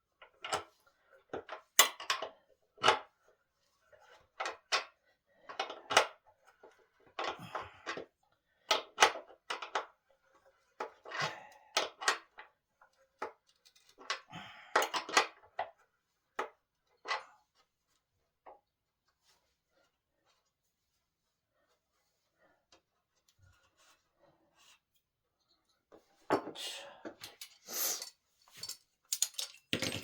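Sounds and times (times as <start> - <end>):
wooden parts knocking and clattering: 28.6 - 30.0.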